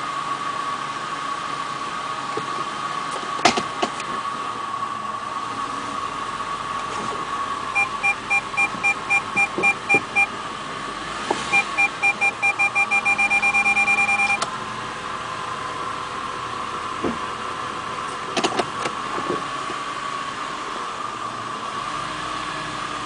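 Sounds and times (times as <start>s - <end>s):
car engine hum: 0.0s - 23.0s
parking sensor beeping: 7.7s - 10.4s, 11.4s - 14.5s.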